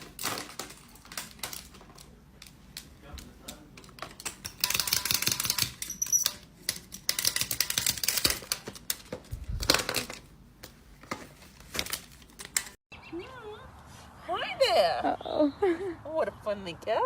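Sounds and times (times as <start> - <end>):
rapid irregular clicking and tapping: 0.0 - 12.8.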